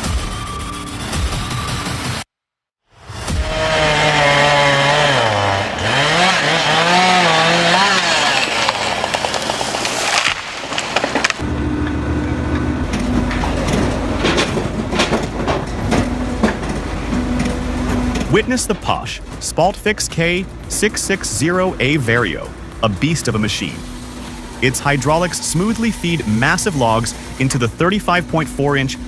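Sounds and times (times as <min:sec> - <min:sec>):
firewood processing machine running: 0:03.0 - 0:29.0
wood cracking as it is split: 0:03.8 - 0:11.4
swooping pitched tones: 0:11.3 - 0:29.0.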